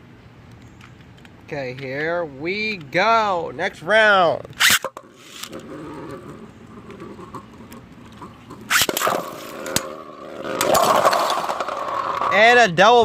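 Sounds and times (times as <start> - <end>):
spinning top launcher snap: 4.6 - 5.5, 8.7 - 9.9
spinning tops whirring and colliding: 4.6 - 5.8, 8.5 - 12.4
tops flying apart: 8.7 - 12.3.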